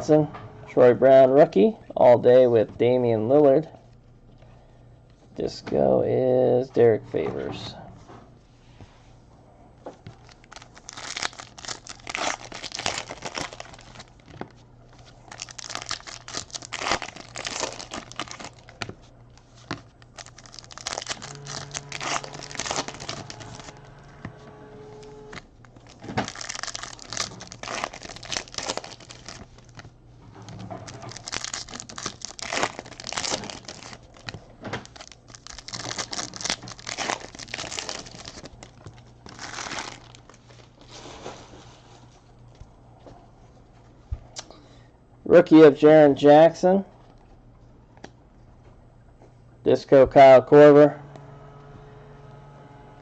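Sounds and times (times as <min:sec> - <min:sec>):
faint steady low hum: 0:00.0 - 0:53.0
foil wrappers crinkling and tearing: 0:10.1 - 0:23.8, 0:25.2 - 0:29.9, 0:30.5 - 0:42.2.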